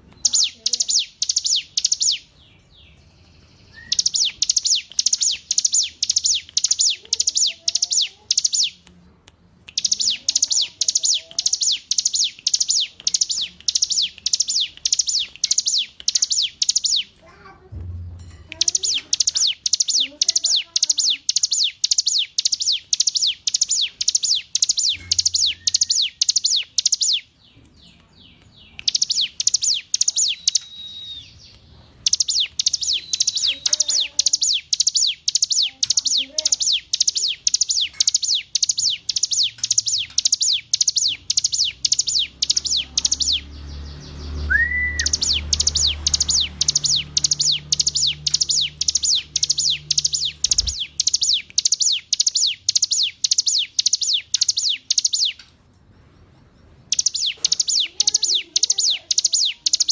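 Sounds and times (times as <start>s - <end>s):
bird singing high down-slurred notes: 17.8s - 55.4s.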